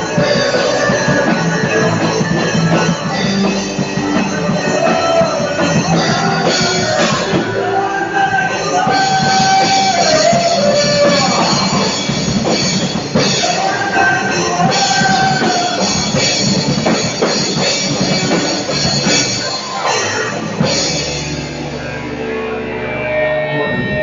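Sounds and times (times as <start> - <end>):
drum kit playing: 0.0 - 22.3
rock backing track with guitars: 0.0 - 24.0.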